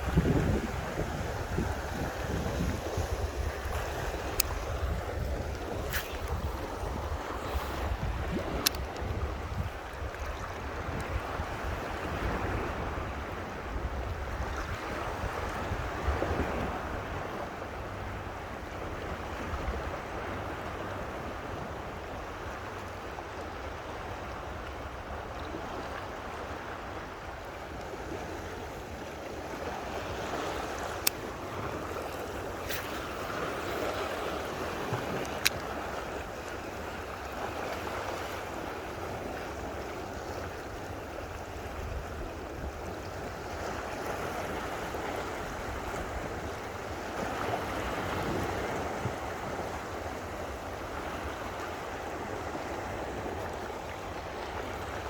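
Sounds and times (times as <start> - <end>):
wind buffeting microphone: 0.0 - 17.6
rushing water: 0.0 - 55.0.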